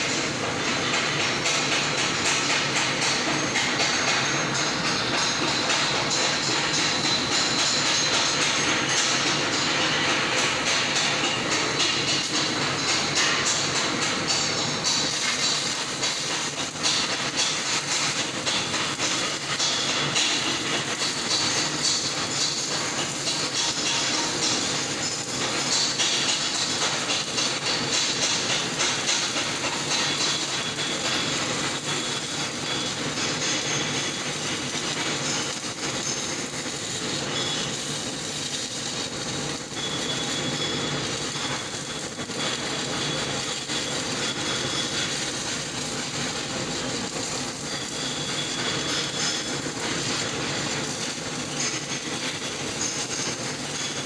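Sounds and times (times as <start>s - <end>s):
welding arc crackling: 0.0s - 54.0s.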